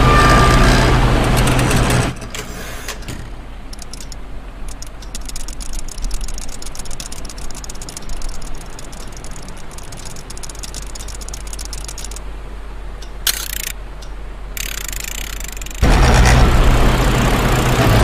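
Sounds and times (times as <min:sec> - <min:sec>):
steady low hum: 0:03.0 - 0:18.0
rapid dry ratchet-like clicking: 0:03.7 - 0:12.2, 0:13.0 - 0:13.8, 0:14.6 - 0:17.8.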